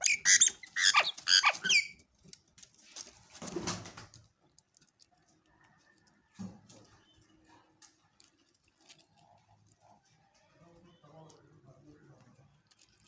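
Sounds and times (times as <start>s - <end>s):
bird chicks chirping shrilly: 0.0s - 1.9s.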